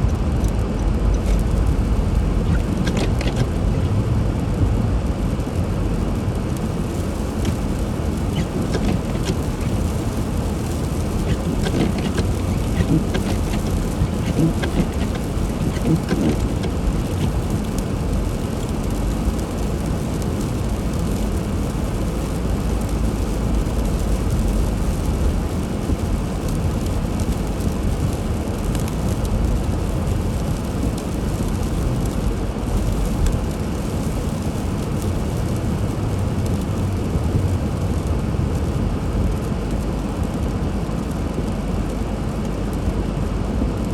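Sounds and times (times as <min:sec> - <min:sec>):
car driving on snowy road: 0:00.0 - 0:43.9.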